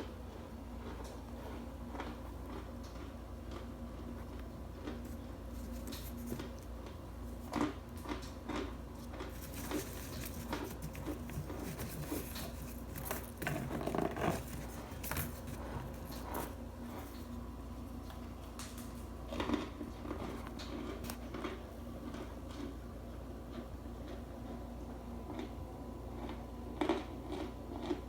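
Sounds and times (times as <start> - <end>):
compressed starch crunching: 0.7 - 18.6.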